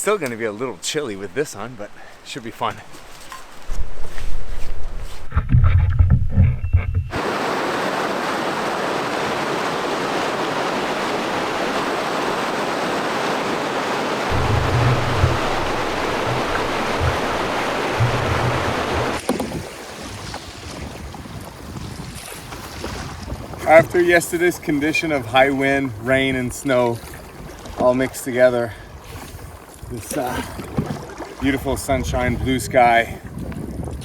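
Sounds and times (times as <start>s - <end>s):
wind buffeting microphone: 3.6s - 24.8s, 28.8s - 34.0s
river water rushing: 7.2s - 20.7s.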